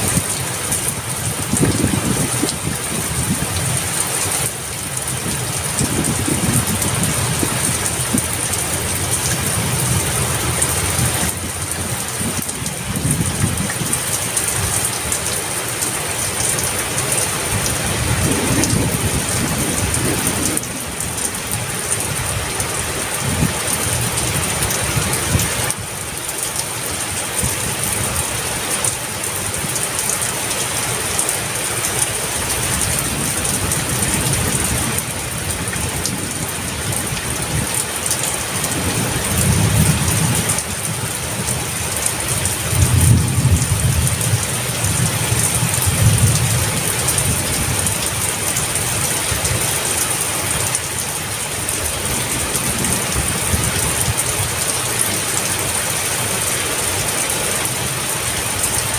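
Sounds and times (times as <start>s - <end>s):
low thunder rumbles: 0.0s - 15.0s, 17.3s - 26.0s, 32.1s - 49.6s
heavy rain: 0.0s - 58.9s.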